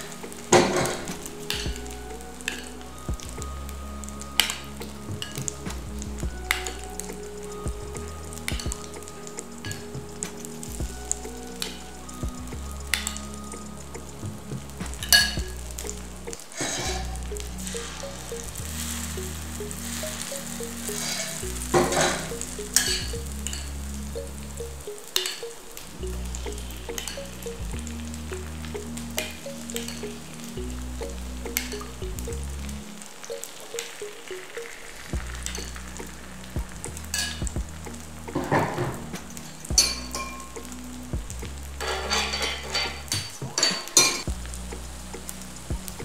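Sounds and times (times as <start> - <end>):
hot oil sizzling and bubbling: 0.0 - 46.0
batter sizzling in hot oil: 8.2 - 25.4.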